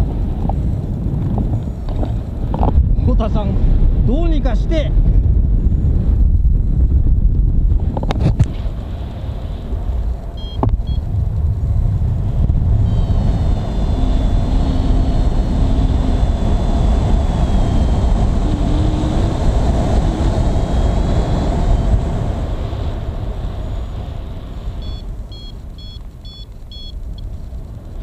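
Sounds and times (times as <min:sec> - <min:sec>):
strong wind over microphone: 0:00.0 - 0:28.0
faint high whine: 0:08.5 - 0:28.0.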